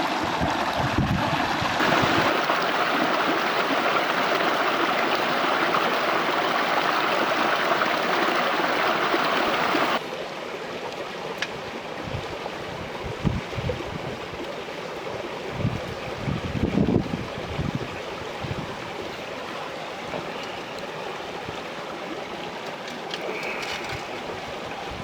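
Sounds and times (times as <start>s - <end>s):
stream rushing over rocks: 0.0s - 12.8s.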